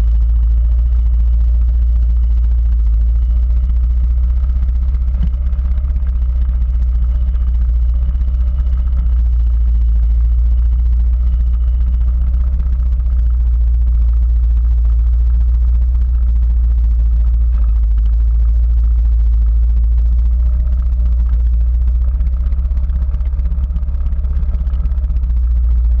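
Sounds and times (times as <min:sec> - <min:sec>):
quad bike engine running: 0:00.0 - 0:26.0.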